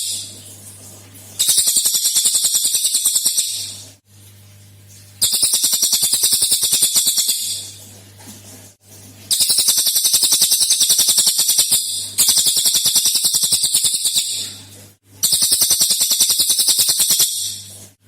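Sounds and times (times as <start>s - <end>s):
songbird rattling song: 1.4s - 3.8s, 5.2s - 7.8s, 9.3s - 14.5s, 15.2s - 17.7s.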